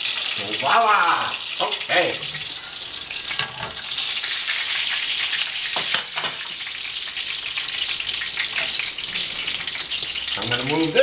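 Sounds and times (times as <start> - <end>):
meatballs sizzling in oil: 0.0 - 11.0
cooking utensils clattering: 1.6 - 4.2, 4.9 - 6.6, 8.2 - 11.0.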